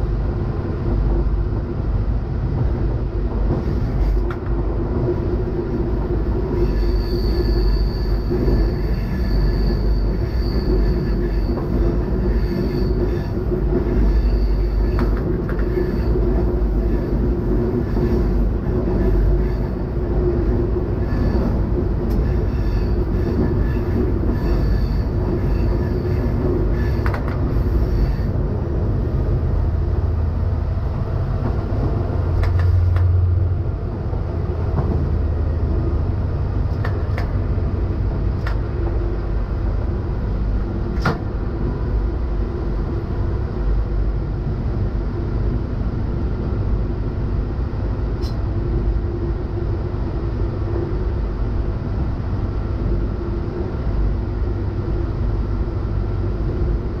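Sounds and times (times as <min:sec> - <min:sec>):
railcar engine and wheels drone: 0:00.0 - 0:57.0
wheels squealing on a curve: 0:06.5 - 0:15.0.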